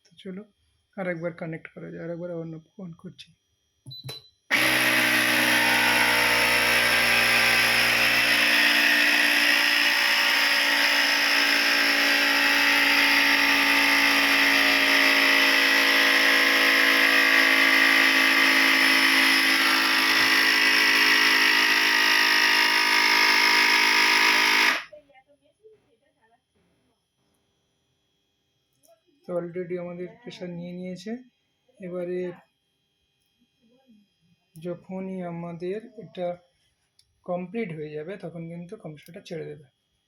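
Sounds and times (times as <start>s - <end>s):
air compressor running: 4.5s - 24.9s.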